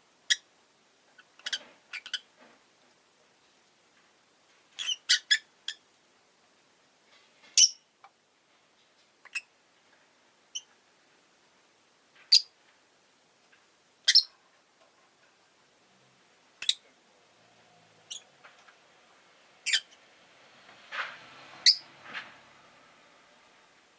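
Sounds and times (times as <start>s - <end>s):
lovebird chirping: 4.8s - 5.8s, 7.6s - 7.8s, 12.3s - 12.5s, 14.0s - 14.4s, 16.6s - 16.8s, 18.0s - 18.3s, 19.6s - 20.0s, 21.6s - 21.8s.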